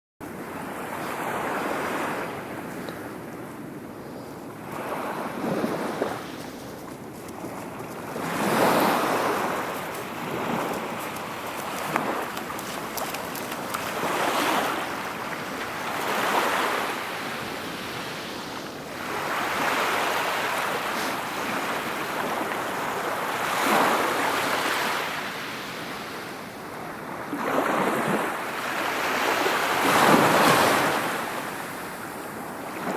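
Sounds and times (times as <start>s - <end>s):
wind on microphone: 0.3s - 25.0s
sea waves washing in: 4.6s - 25.3s.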